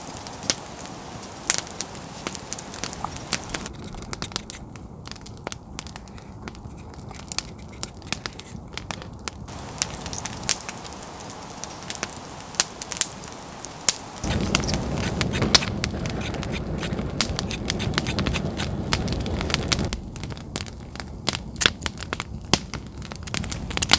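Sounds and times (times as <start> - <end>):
steady rushing noise: 0.0 - 3.7, 9.5 - 19.9
campfire crackling and popping: 0.0 - 23.9.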